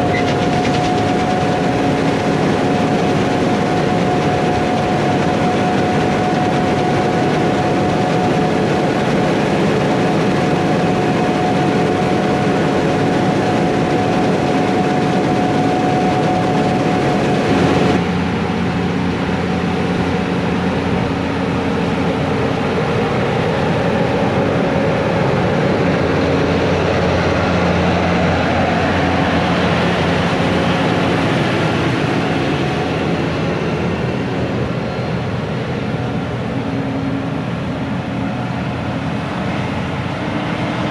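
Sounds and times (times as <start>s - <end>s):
deeper engine hum: 0.0s - 40.9s
diesel engine drone with whine: 0.0s - 40.9s.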